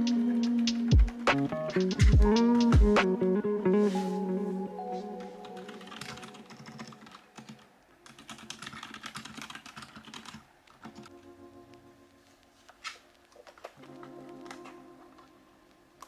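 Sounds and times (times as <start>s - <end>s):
typing on mechanical keyboard: 5.5s - 11.1s.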